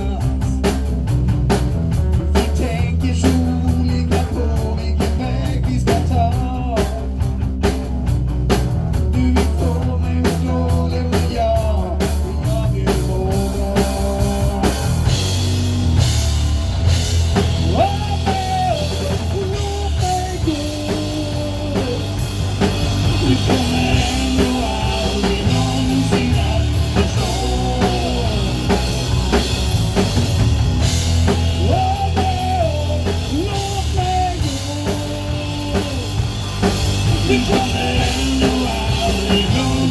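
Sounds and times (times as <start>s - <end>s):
bass guitar: 0.0s - 39.9s
drum kit: 0.0s - 39.9s.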